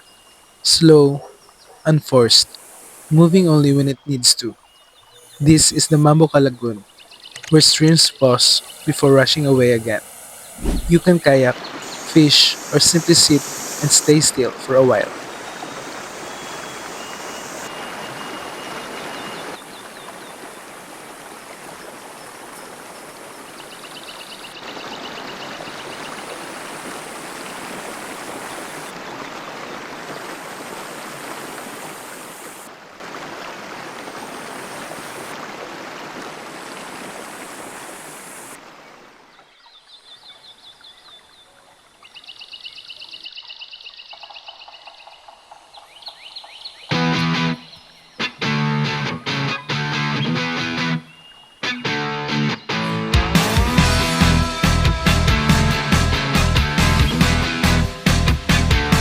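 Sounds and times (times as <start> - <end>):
stream rushing over rocks: 7.5 - 24.0, 24.6 - 39.4.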